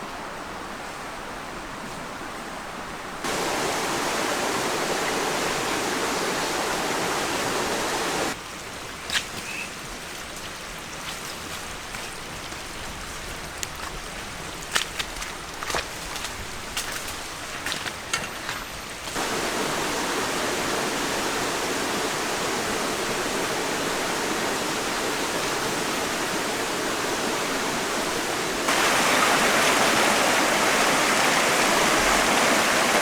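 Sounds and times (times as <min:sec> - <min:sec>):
waterfall rushing water: 0:03.2 - 0:08.4, 0:19.1 - 0:33.0.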